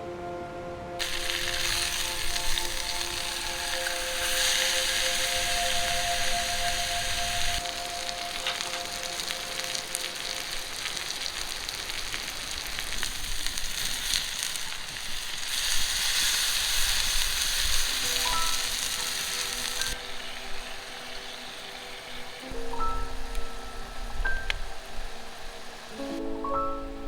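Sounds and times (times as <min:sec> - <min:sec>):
soft background music: 0:00.0 - 0:12.1, 0:16.8 - 0:27.0
food sizzling in a pan: 0:01.0 - 0:26.3.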